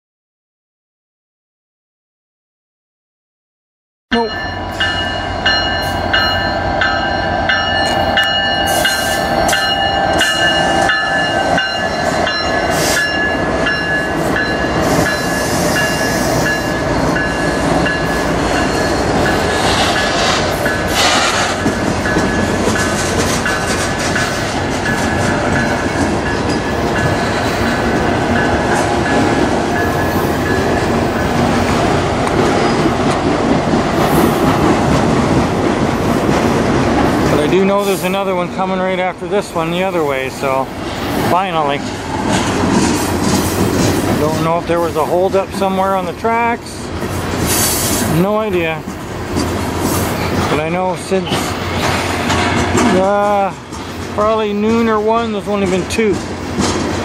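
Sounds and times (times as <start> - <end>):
steady high tones: 4.1 - 31.8
diesel locomotives passing: 4.1 - 57.0
freight cars rumbling and clacking: 5.4 - 57.0.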